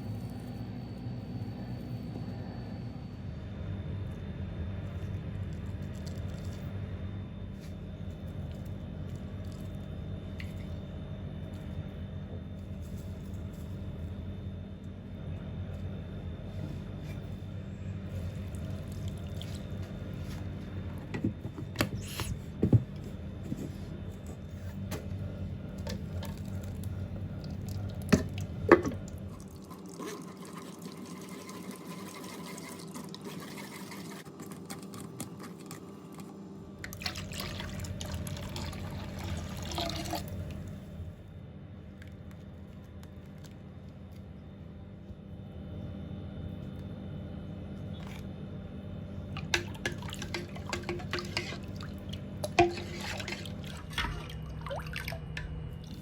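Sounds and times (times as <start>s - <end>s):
liquid pouring and dripping: 36.8s - 40.6s, 49.4s - 56.0s.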